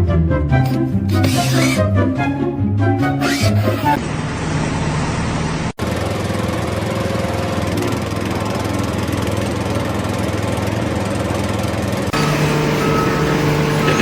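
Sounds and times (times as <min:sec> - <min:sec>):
engine running steadily: 0:03.8 - 0:14.0.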